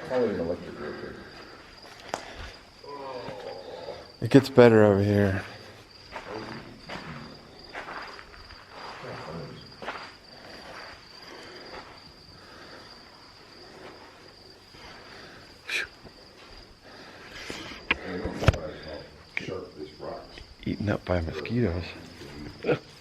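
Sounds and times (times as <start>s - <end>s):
crickets trilling: 0.0s - 23.0s
soft footsteps: 5.3s - 12.2s.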